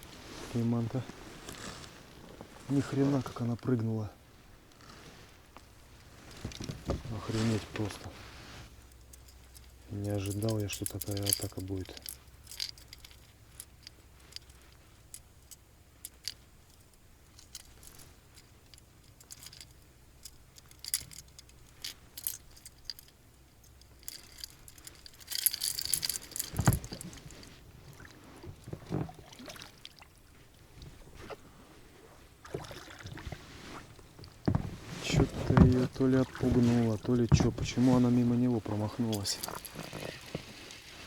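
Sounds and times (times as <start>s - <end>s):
fishing tackle clicks and rattles: 8.9s - 27.6s, 34.1s - 40.9s.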